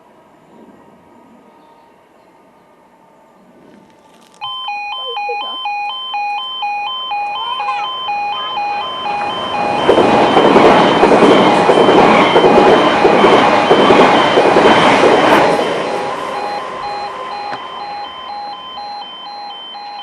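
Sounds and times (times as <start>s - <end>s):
level crossing two-tone alarm: 4.4s - 20.0s.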